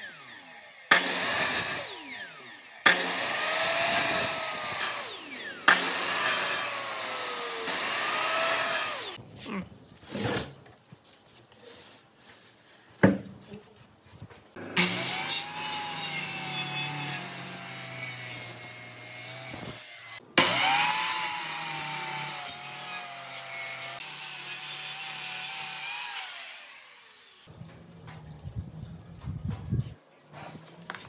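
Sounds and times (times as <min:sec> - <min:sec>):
power tool cutting wood: 0:00.0 - 0:09.2, 0:14.6 - 0:27.5.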